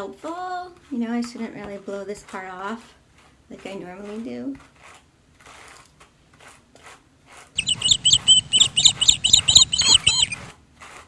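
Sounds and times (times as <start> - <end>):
bird chirping high notes: 7.6 - 10.5.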